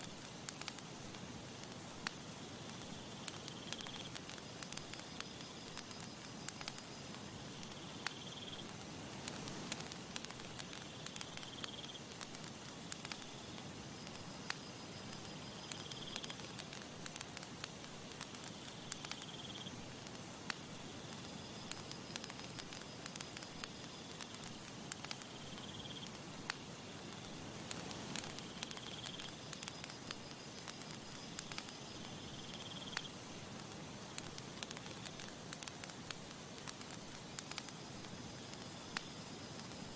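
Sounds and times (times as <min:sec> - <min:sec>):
campfire crackling and popping: 0:00.0 - 0:39.9
soft breeze: 0:00.0 - 0:39.9.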